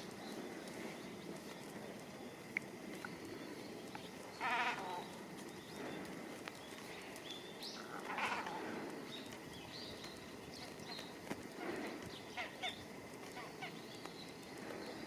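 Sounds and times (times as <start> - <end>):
small birds chirping: 0.0 - 15.0
cormorants calling: 4.3 - 6.1, 7.8 - 9.1, 10.6 - 14.0.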